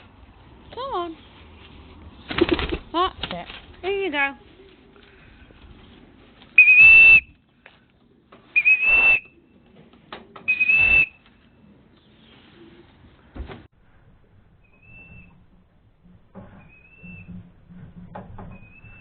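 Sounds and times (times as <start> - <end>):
short high whistles: 6.6 - 7.3, 8.6 - 9.3, 10.5 - 11.2.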